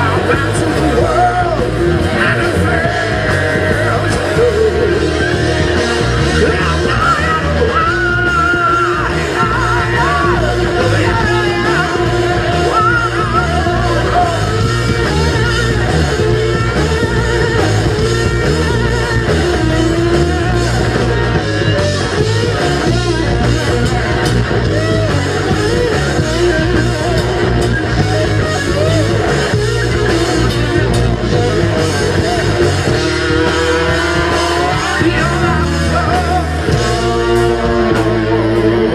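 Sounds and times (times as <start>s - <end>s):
person singing: 0.0s - 18.6s, 30.9s - 38.9s
bass guitar: 0.0s - 38.9s
drums: 0.0s - 38.9s
electric guitar: 0.0s - 38.9s.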